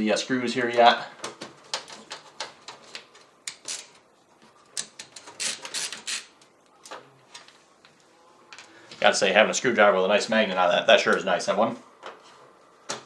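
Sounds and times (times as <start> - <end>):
screwdriver clicking and scraping: 3.5 - 4.0, 4.8 - 6.3.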